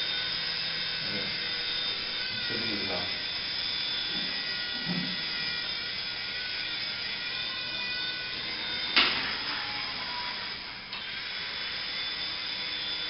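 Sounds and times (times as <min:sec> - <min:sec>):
toy helicopter motor whining: 0:00.0 - 0:13.0.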